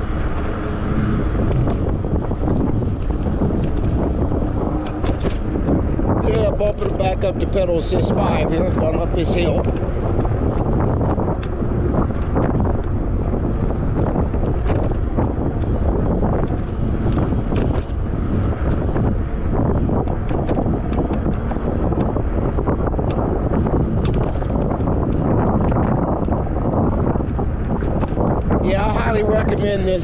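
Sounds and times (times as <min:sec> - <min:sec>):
wind buffeting microphone: 0:00.0 - 0:30.0
small ticks and rattles: 0:23.0 - 0:26.4.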